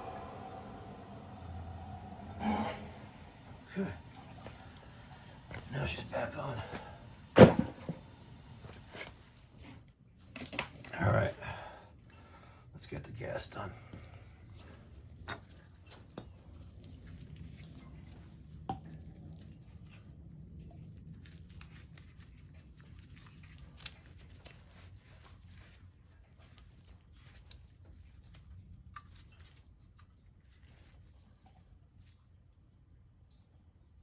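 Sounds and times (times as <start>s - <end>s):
low steady hum: 0.0s - 9.7s.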